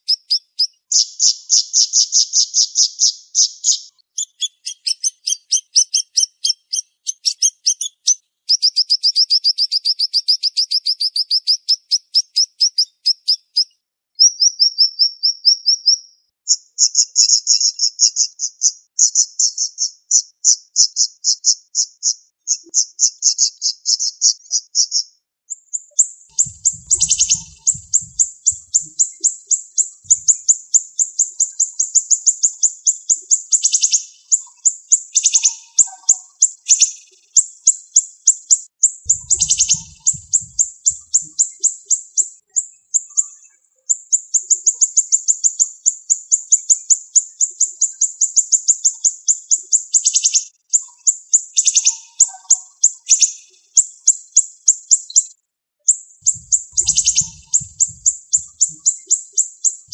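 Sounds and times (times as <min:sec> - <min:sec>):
lower bird notes: 0:26.3 - 0:29.3, 0:30.1 - 0:30.6, 0:39.1 - 0:41.4, 0:56.2 - 0:58.9
songbird singing high notes: 0:26.4 - 0:29.2, 0:39.1 - 0:41.5, 0:56.3 - 0:59.0.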